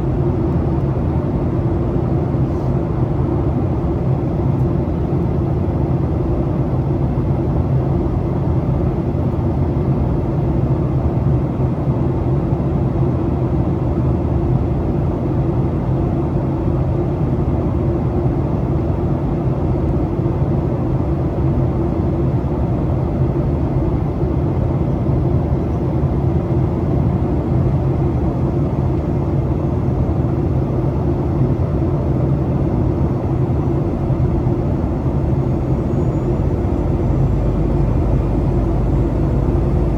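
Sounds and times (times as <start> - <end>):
airliner cabin engine rumble: 0.0 - 39.9
steady low hum: 25.5 - 39.9.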